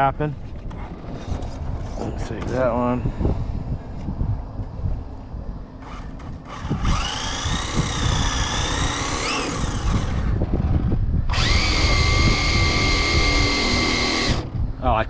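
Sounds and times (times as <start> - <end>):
steady high motor whine: 3.9 - 14.8
electric motor whining: 5.8 - 14.7.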